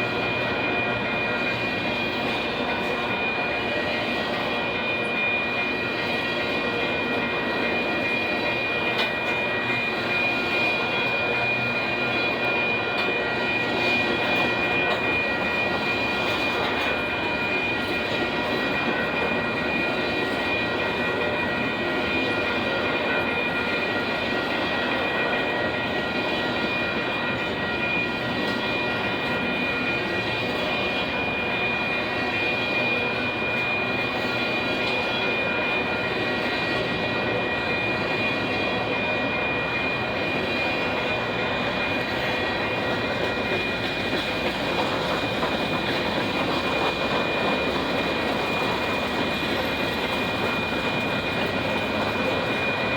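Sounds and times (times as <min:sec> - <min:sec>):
high-pitched ringing tone: 0:00.0 - 0:52.9
freight cars rumbling on rails: 0:33.8 - 0:52.9.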